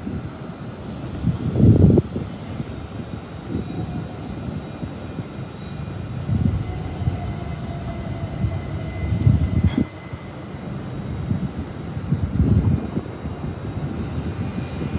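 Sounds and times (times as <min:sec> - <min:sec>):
train rumbling: 0:00.0 - 0:14.9
wind buffeting microphone: 0:01.0 - 0:04.1, 0:06.2 - 0:14.9.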